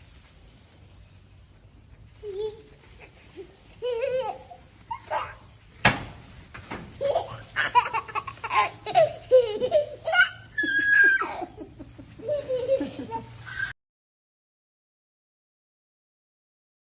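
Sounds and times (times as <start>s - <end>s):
young child laughing: 2.2s - 5.4s, 7.0s - 13.8s
child squealing: 10.2s - 11.5s, 13.4s - 13.8s.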